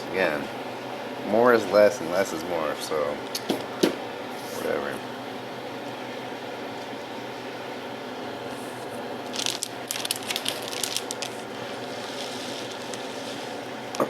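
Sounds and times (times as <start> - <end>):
fan hum: 0.0 - 14.0
crinkling handling noises: 8.5 - 13.7.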